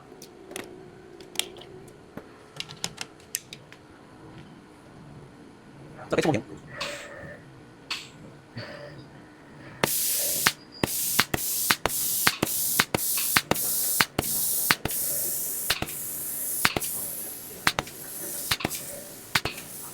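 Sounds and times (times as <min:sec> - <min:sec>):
sharp click: 0:09.8 - 0:19.9
spray gun hissing bursts: 0:09.8 - 0:19.9.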